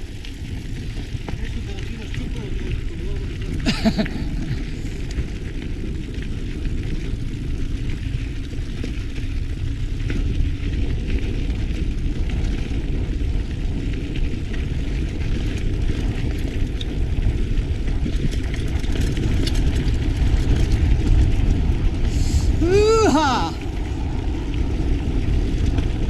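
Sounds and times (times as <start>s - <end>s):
bike tyres crackling on trail: 0.0s - 26.0s
wind on microphone: 0.0s - 26.0s.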